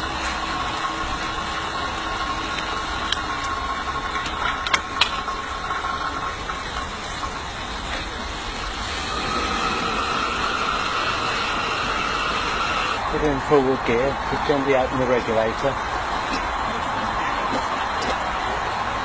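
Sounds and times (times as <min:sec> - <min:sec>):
electric fan whine: 0:00.0 - 0:19.0
steam locomotive hiss and whine: 0:00.0 - 0:19.0.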